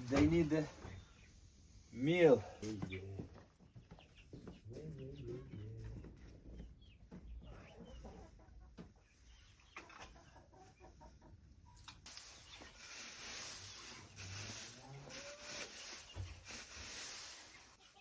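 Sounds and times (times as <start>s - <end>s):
chickens clucking softly: 2.6s - 18.0s
steady rustling hiss: 12.1s - 18.0s.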